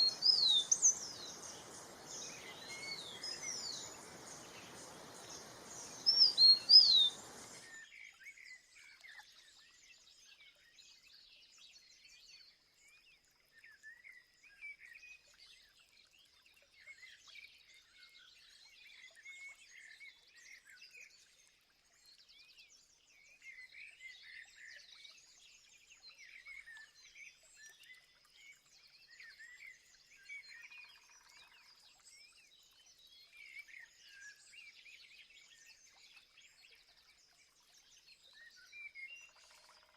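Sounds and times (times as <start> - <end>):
small birds chirping: 0.0 - 7.8.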